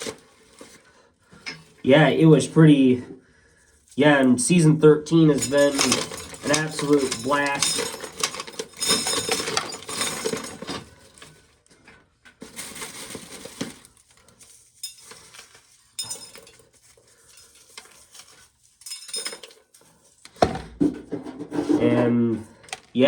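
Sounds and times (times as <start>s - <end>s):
dried corn kernels rattling: 3.7s - 11.5s, 12.4s - 20.3s.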